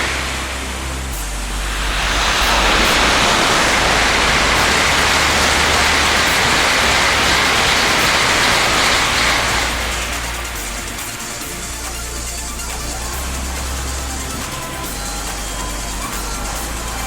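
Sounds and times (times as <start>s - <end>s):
high-speed train rushing past: 0.0s - 17.0s.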